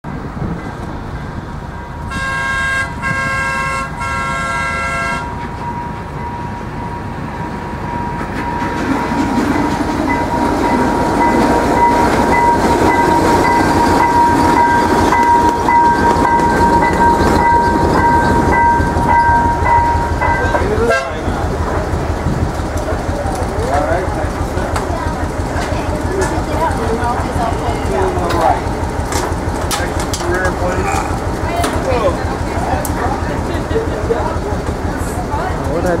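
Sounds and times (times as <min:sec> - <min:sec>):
passing train rolling: 0:00.0 - 0:36.0
steady high tone: 0:01.1 - 0:21.6
locomotive horn blasts: 0:02.0 - 0:05.4, 0:20.8 - 0:21.3.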